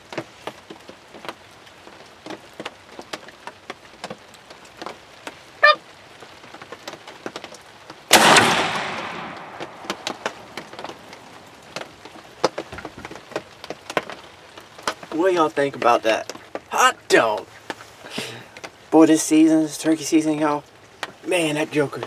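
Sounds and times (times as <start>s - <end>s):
rain pattering on blind: 0.0s - 22.0s
shotgun blast: 8.1s - 10.6s.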